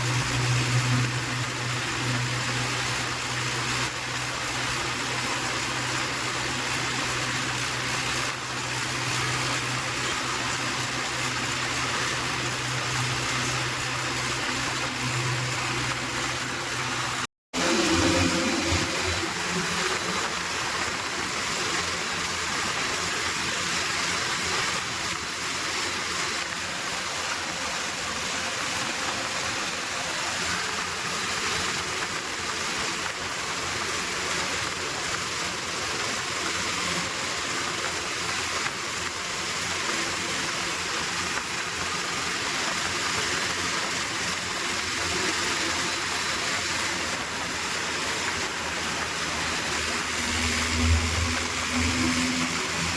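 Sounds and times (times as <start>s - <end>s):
faint engine hum: 0.0s - 22.6s
road noise: 0.0s - 52.9s.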